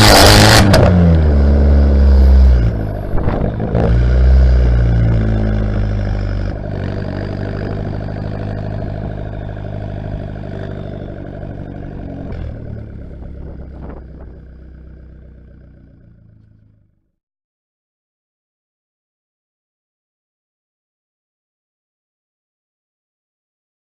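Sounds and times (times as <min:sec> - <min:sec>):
car engine exhaust running: 0:00.0 - 0:17.0.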